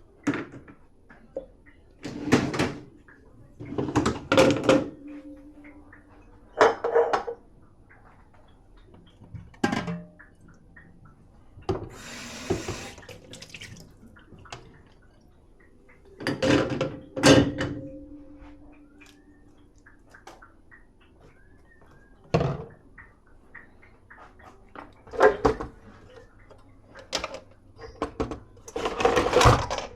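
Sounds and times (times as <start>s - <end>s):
dishes clinking and clattering: 3.7s - 7.4s
running water: 10.2s - 28.0s.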